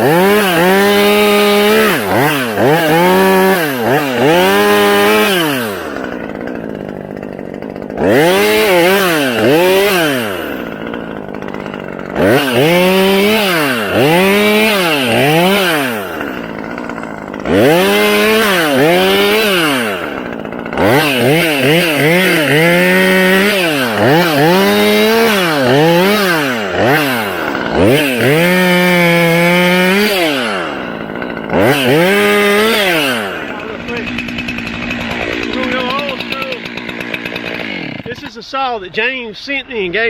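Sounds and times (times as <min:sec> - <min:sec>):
chainsaw engine revving: 0:00.0 - 0:40.0.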